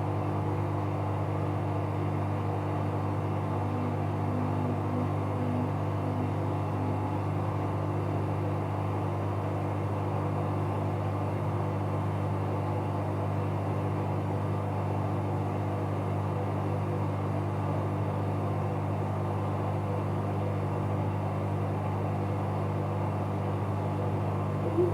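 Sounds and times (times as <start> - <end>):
washing machine running: 2.2 - 8.1, 24.1 - 24.9.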